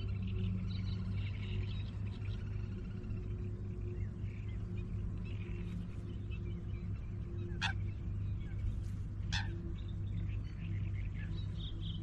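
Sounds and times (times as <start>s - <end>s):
songbirds chirping: 0.0s - 12.0s
steady low hum: 0.0s - 12.0s.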